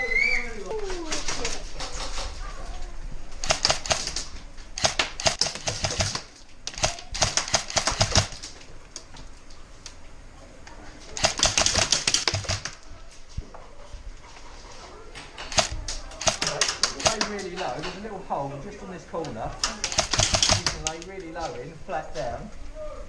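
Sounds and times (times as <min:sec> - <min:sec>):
airsoft guns firing: 0:03.4 - 0:08.6, 0:11.2 - 0:12.8, 0:15.5 - 0:17.5, 0:19.6 - 0:21.0.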